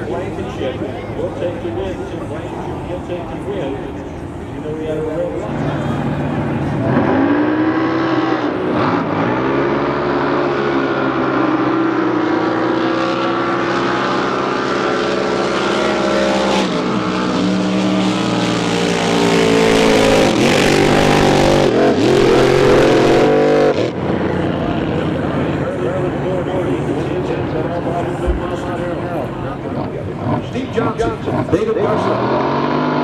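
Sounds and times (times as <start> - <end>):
boat engine running: 9.4 - 23.6, 24.2 - 31.6.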